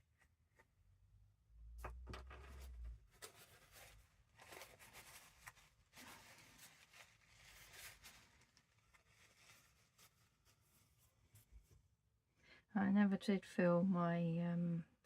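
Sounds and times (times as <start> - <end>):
paper rustling and scraping: 2.2 - 11.5.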